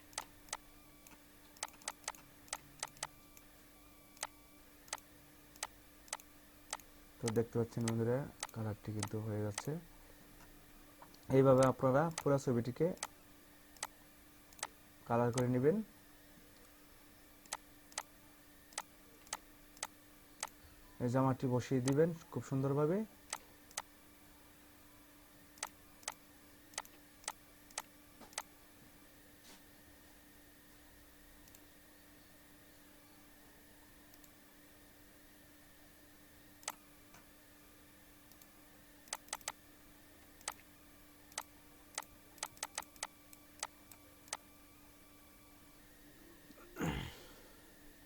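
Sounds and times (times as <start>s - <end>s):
faint steady hum: 0.0s - 48.0s
mouse button clicking: 5.6s - 9.7s, 39.1s - 39.6s, 41.3s - 43.7s.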